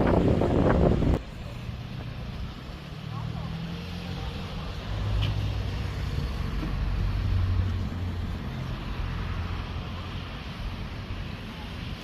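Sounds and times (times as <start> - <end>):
wind buffeting microphone: 0.0 - 1.4.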